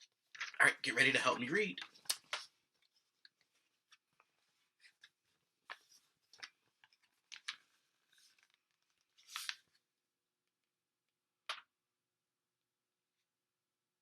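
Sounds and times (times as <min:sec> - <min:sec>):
rustles and scrapes of handling: 0:01.8 - 0:09.8.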